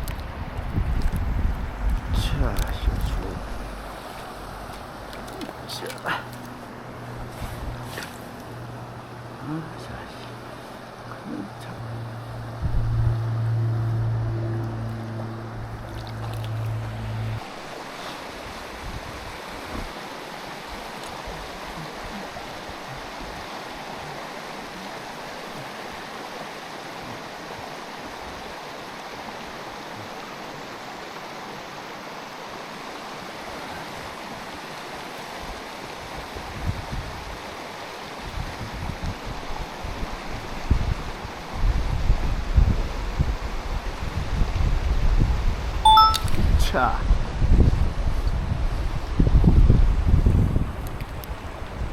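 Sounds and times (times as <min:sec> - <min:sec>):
stream water rushing: 0:00.0 - 0:51.9
low steady hum: 0:00.7 - 0:17.4.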